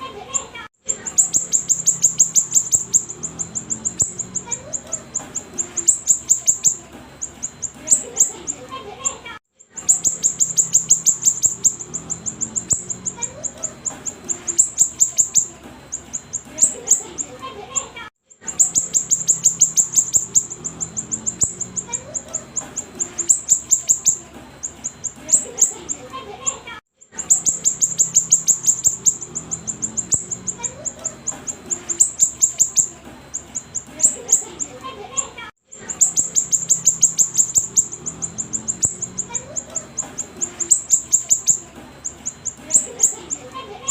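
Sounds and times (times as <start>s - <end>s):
bird singing high chirps: 0.8s - 8.7s, 9.6s - 34.8s, 35.7s - 43.9s.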